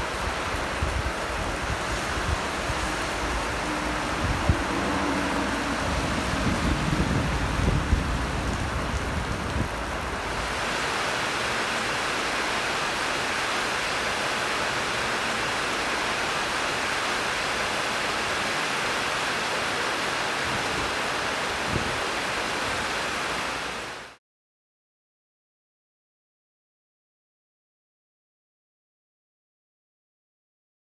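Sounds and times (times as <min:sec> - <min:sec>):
heavy rain falling: 0:00.0 - 0:24.2
low rumble: 0:02.1 - 0:09.8.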